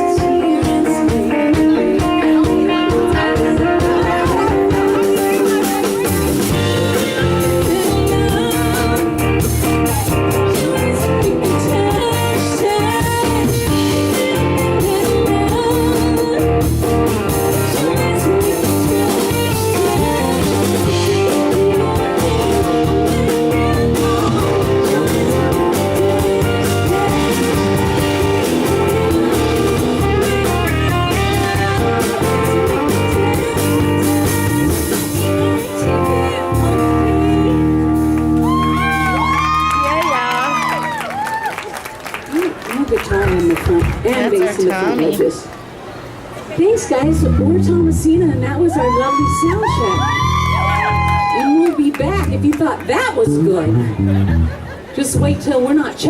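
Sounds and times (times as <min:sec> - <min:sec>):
drum beat: 0:00.0 - 0:12.4, 0:18.5 - 0:35.0
blues-rock guitar: 0:00.0 - 0:41.3
bass guitar: 0:00.0 - 0:41.5, 0:46.8 - 0:56.0.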